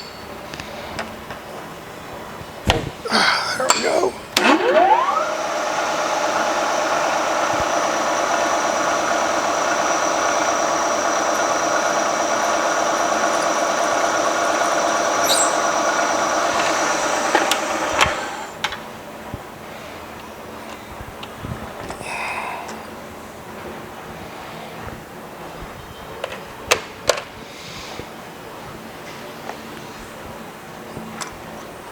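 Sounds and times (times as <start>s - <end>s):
milling drill squealing on steel: 3.6s - 18.6s.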